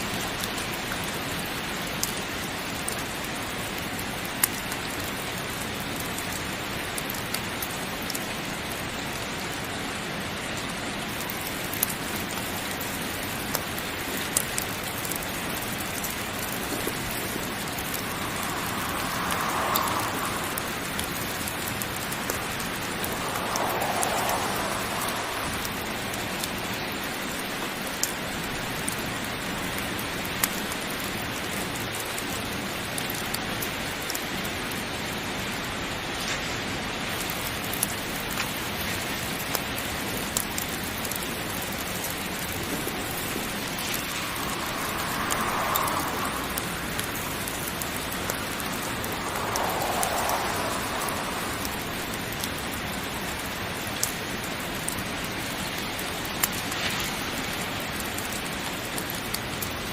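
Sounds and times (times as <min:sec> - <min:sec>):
heavy rain: 0:00.0 - 0:59.9
wood fire crackling: 0:11.2 - 0:28.9, 0:40.3 - 0:59.9.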